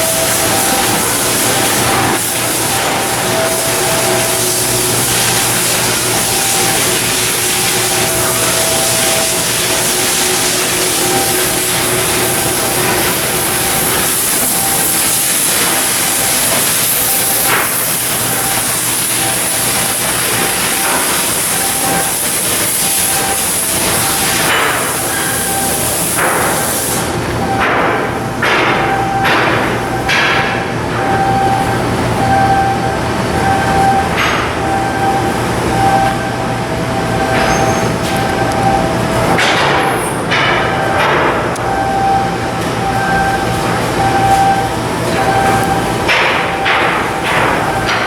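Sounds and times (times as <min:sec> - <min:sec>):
loud steady hiss: 0:00.0 - 0:27.9.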